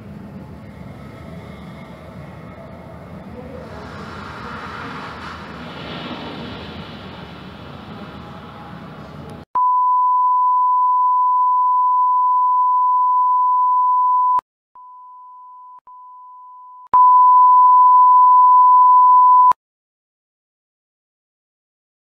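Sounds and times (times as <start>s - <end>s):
burst of rushing noise: 3.5s - 9.4s.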